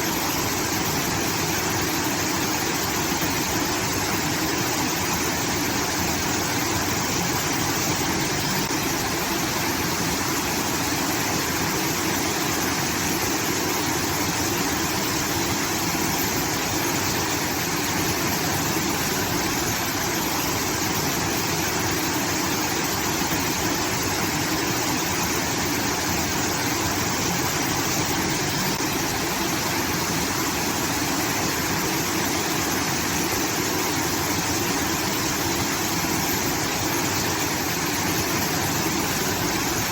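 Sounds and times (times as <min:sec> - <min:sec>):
water pouring and rushing: 0:00.0 - 0:39.9.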